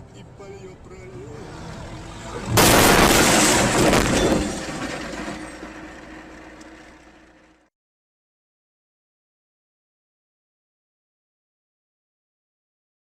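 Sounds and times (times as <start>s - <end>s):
rough crashing noise: 2.4s - 7.6s
vehicle crash impact: 2.4s - 7.6s.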